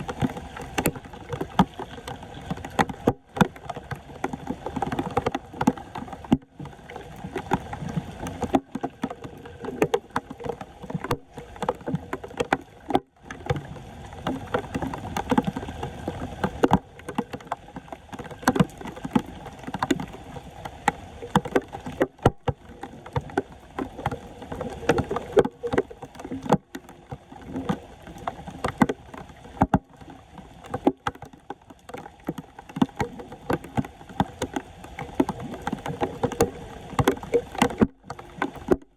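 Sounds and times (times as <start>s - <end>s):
sharp knocks and clicks: 0.0s - 13.6s, 30.6s - 38.9s
water sloshing and splashing: 0.0s - 38.9s.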